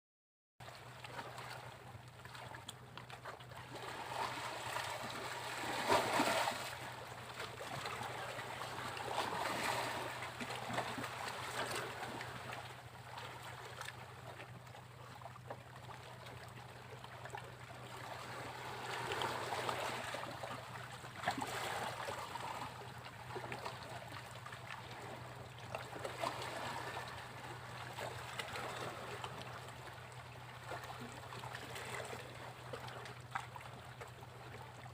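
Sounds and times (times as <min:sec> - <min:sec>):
steady low hum: 0:00.7 - 0:34.9
sea waves breaking on beach: 0:03.7 - 0:12.6, 0:17.9 - 0:22.8.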